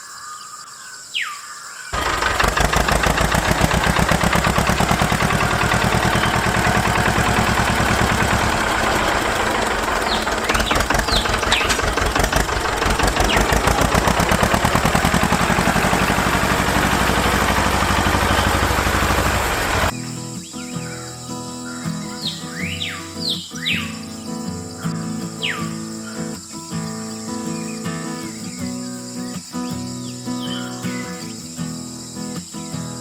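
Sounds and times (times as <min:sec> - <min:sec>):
faint bird chirps: 0:00.0 - 0:02.0, 0:04.4 - 0:12.4, 0:19.9 - 0:33.0
engine running steadily: 0:02.0 - 0:20.0.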